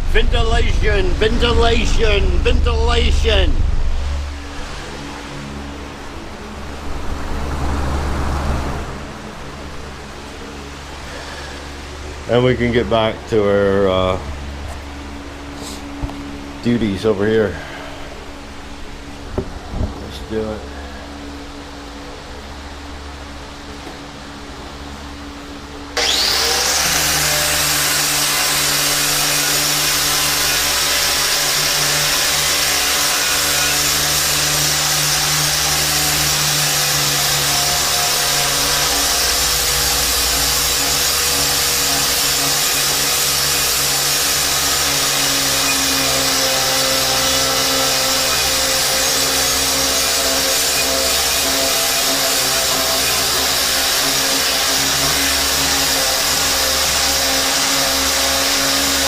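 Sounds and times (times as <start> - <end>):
angle grinder stripping rust: 26.0 - 59.0.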